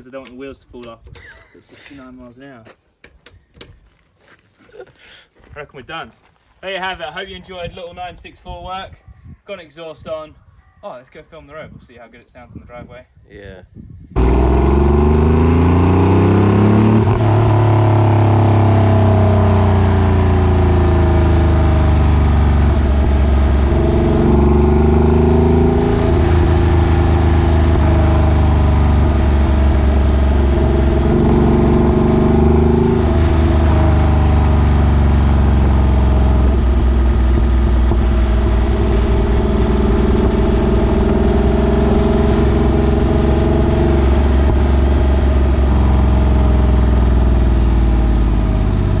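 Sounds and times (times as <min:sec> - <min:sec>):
car engine through exhaust: 0:14.2 - 0:49.0.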